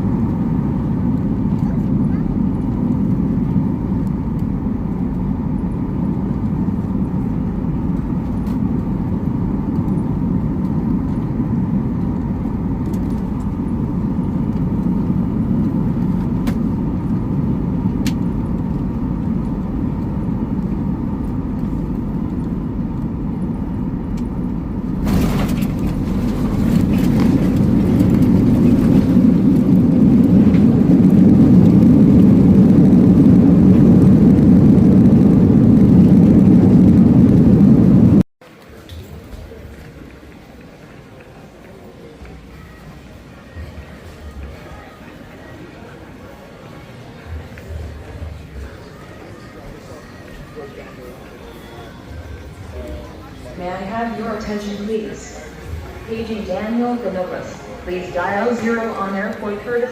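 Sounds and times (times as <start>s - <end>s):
vehicle rumble from inside: 0.0s - 38.3s.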